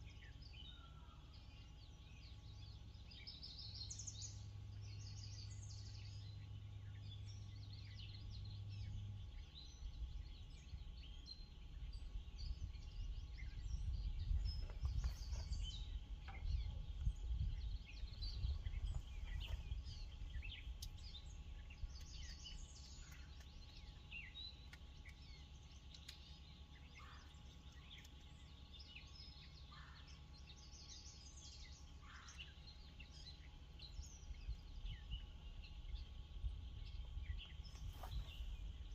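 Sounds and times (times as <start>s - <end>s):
birds chirping: 0.0s - 38.9s
low rumble: 4.4s - 24.9s, 33.2s - 38.9s.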